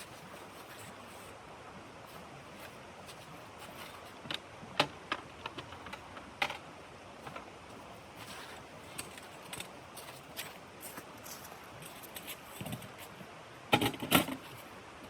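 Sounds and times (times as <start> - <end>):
steady low hiss: 0.0 - 15.0
sharp clicks and light knocks: 3.7 - 6.6.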